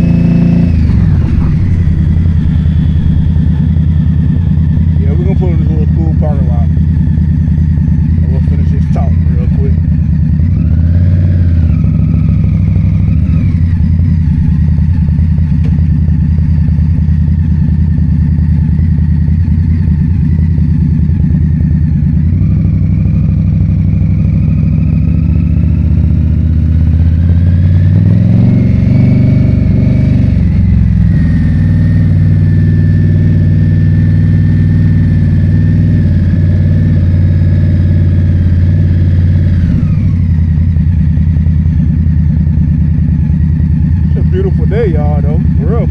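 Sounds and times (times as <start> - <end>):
wind noise: 0.0 - 4.8
motorcycle engine running: 0.0 - 45.9.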